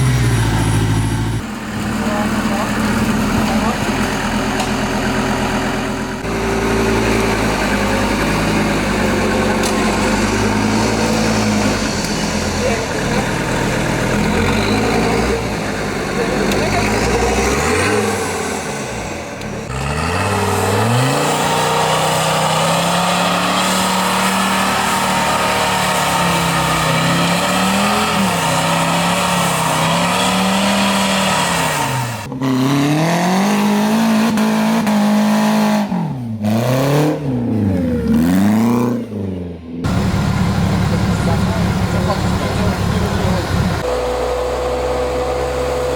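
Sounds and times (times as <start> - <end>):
off-road vehicle engine revving: 0.0 - 45.9.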